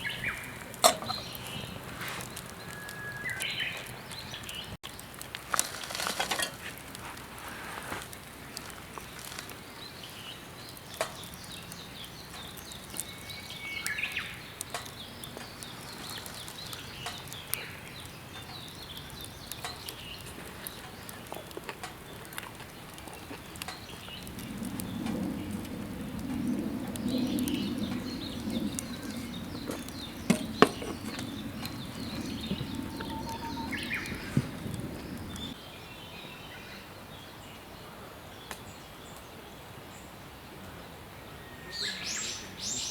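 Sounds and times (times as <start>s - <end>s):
low hum: 23.9s - 35.6s.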